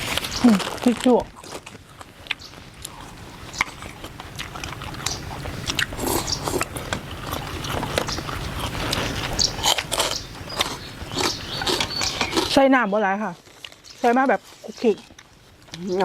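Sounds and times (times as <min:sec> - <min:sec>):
person biting and chewing: 0:00.0 - 0:12.6.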